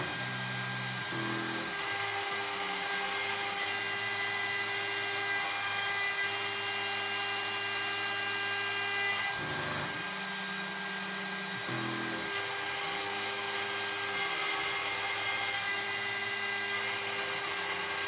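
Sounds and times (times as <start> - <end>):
axis motors humming: 0.0 - 18.0
cnc router spindle whining: 0.0 - 18.0.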